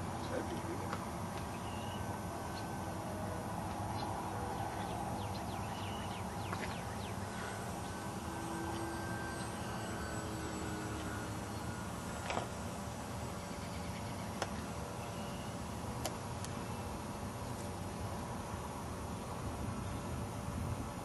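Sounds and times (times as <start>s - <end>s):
distant model airplane motor whining: 0.0s - 21.0s
outdoor background noise: 0.0s - 21.0s
bird chirps: 1.4s - 2.8s, 3.8s - 11.9s.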